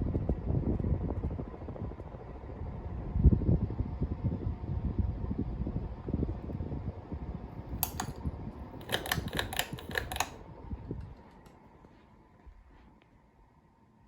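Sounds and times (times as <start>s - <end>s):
ceiling fan air buffeting microphone: 0.0s - 14.0s
sharp clicks: 7.8s - 8.2s, 8.8s - 10.4s.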